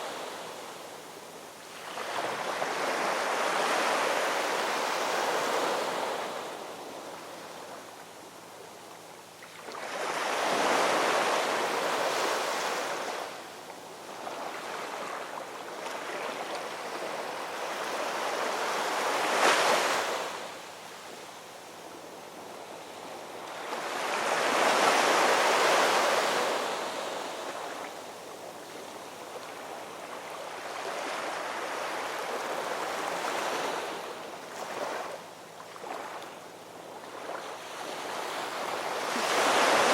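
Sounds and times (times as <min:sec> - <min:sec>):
ocean waves breaking on shore: 0:00.0 - 0:07.9, 0:09.4 - 0:13.4, 0:14.1 - 0:20.6, 0:22.8 - 0:39.9.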